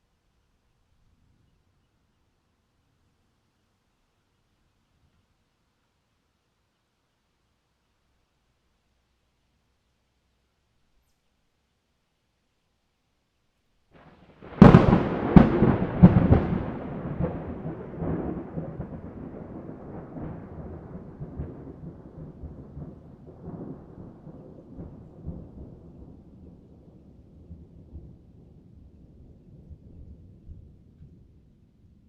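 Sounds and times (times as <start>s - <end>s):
thunder cracks: 14.0s - 26.8s
thunder rumble: 14.0s - 32.0s.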